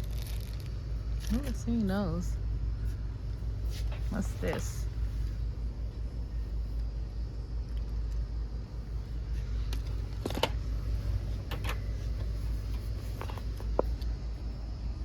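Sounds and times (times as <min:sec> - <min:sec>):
merchandise clicking and rattling: 0:00.0 - 0:02.0, 0:09.3 - 0:14.1
steady low rumble: 0:00.0 - 0:15.0.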